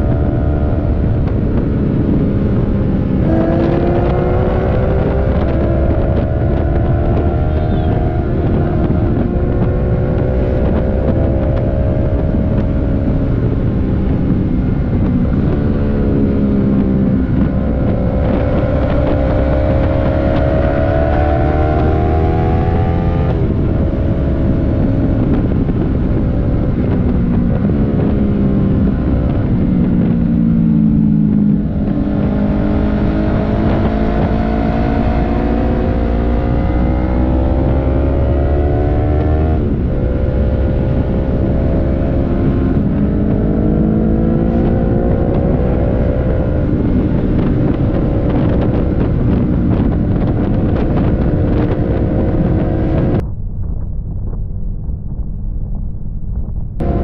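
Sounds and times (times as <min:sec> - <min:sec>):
motorcycle engine shifting gears: 0:00.0 - 0:57.0
wind rushing over microphone: 0:00.0 - 0:57.0.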